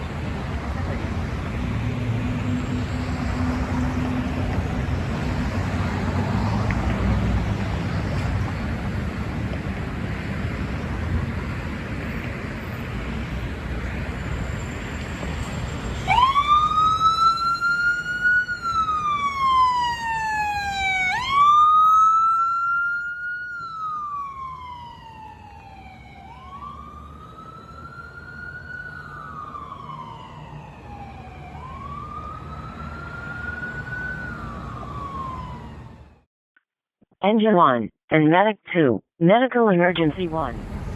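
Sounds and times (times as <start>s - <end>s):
traffic rumble: 0.0s - 36.2s, 39.9s - 40.9s
emergency siren wailing: 1.3s - 8.1s, 14.1s - 36.2s.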